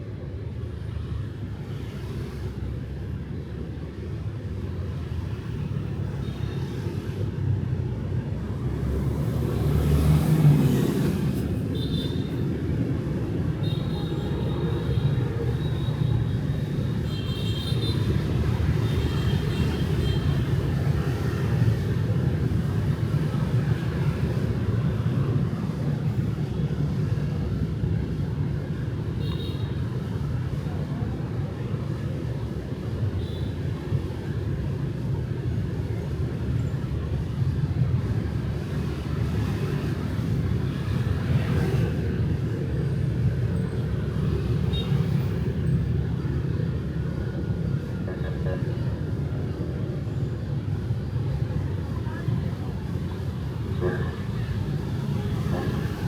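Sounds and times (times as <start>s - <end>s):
street traffic rumble: 0.0s - 56.0s
motorbikes passing: 8.6s - 11.6s.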